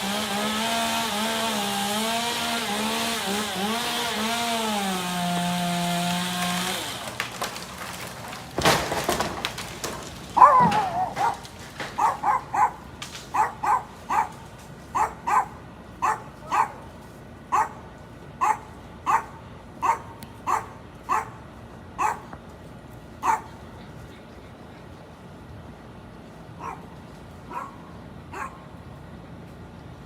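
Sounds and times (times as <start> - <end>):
dog barking: 10.4 - 11.4, 12.0 - 14.4, 15.0 - 16.8, 17.5 - 17.8, 18.4 - 21.4, 22.0 - 22.3, 23.2 - 23.6, 26.6 - 26.9, 27.5 - 28.6.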